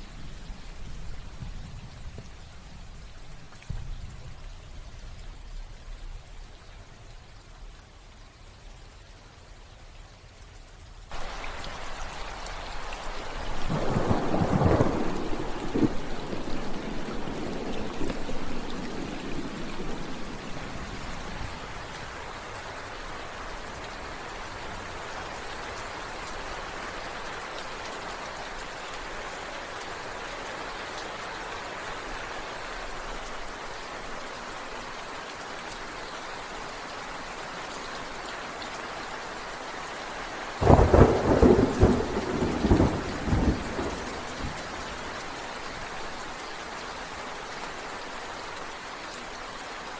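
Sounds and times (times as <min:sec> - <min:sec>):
steady rain: 0:00.0 - 0:49.9
crackling thunderclap: 0:13.3 - 0:21.6, 0:40.6 - 0:45.0
low thunder rumble: 0:13.4 - 0:21.7, 0:40.6 - 0:44.9.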